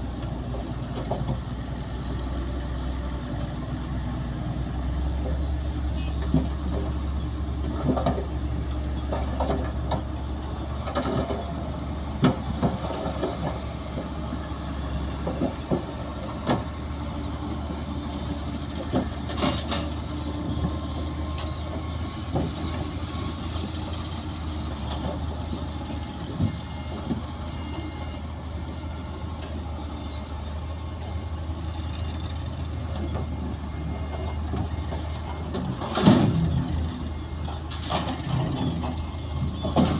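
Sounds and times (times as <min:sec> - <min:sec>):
heavy diesel machinery droning: 0:00.0 - 0:39.9
metallic clanks and knocks: 0:07.6 - 0:10.2, 0:18.8 - 0:22.8, 0:34.1 - 0:36.6.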